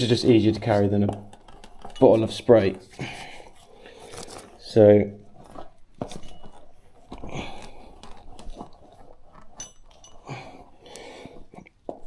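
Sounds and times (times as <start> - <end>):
tyre handling clicks and knocks: 5.3 - 10.3.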